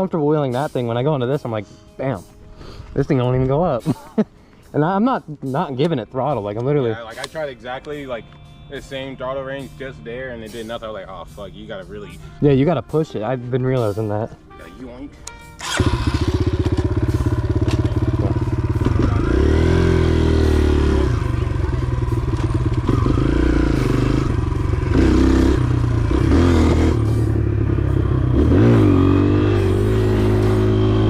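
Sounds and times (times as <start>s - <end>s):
motorcycle engine revving: 15.6s - 31.0s.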